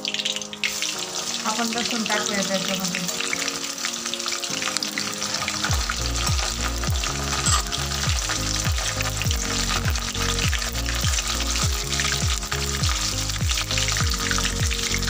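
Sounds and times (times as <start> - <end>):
background music: 0.0 - 15.0
garlic sizzling in hot oil: 0.0 - 15.0
metal spatula stirring: 3.6 - 12.8.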